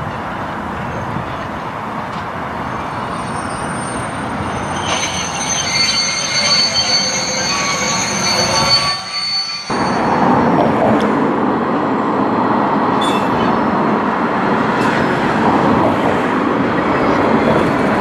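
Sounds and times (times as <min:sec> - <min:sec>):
freight train rumbling past: 0:00.0 - 0:18.0
wheel squeal: 0:02.7 - 0:10.2.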